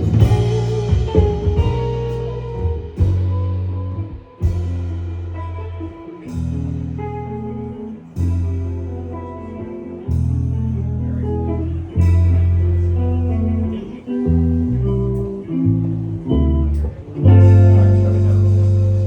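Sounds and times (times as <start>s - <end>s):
bass line: 0.0s - 19.0s
guitar chords: 0.0s - 19.0s.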